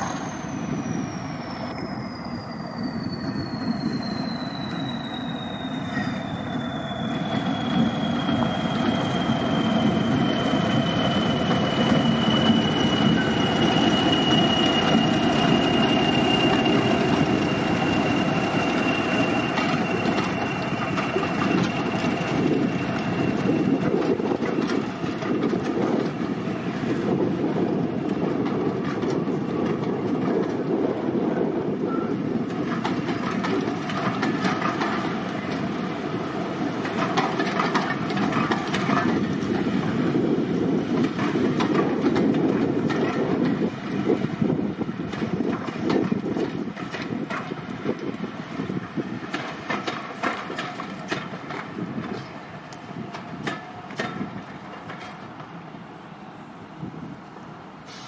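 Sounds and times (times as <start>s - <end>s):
high wheel squeal: 0.0s - 25.4s
train wheel rumble: 0.0s - 58.0s.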